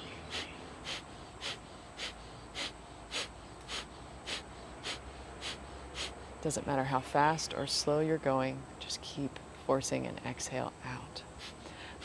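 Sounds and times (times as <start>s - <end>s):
person forcefully exhaling: 0.3s - 6.2s.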